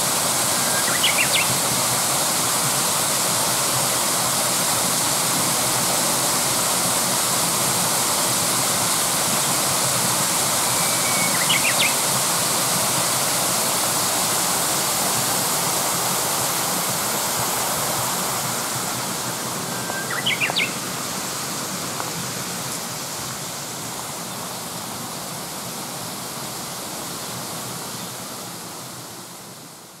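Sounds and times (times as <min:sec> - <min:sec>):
stream rushing over rocks: 0:00.0 - 0:30.0
bird call: 0:00.5 - 0:01.6, 0:10.6 - 0:12.0, 0:19.6 - 0:20.8.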